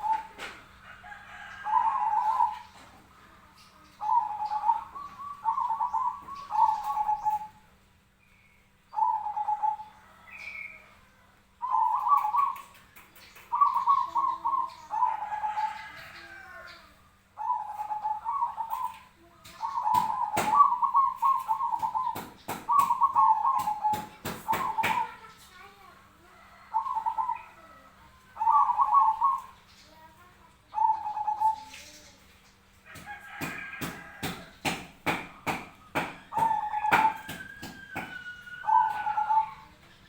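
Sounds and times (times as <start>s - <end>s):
dove cooing: 0.0s - 7.7s, 8.9s - 11.0s, 11.6s - 12.8s, 13.4s - 29.6s, 30.7s - 32.2s, 32.9s - 40.0s
sharp knocks: 21.8s - 25.1s, 33.0s - 38.2s.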